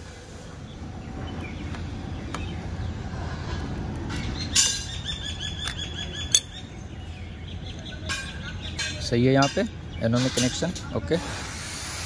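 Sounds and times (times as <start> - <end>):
steady low rumble: 0.0 - 8.8
bird chirping: 0.4 - 10.6.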